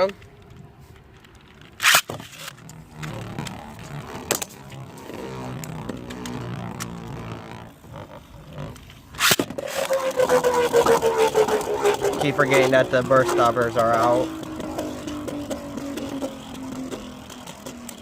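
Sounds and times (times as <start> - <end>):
spinning top whine: 1.4 - 18.0
spinning tops grinding on floor: 8.6 - 18.0.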